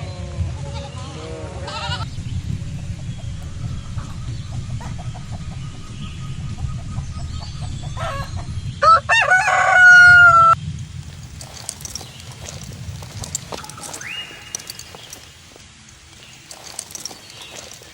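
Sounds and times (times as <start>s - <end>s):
rooster crowing: 7.9s - 10.6s.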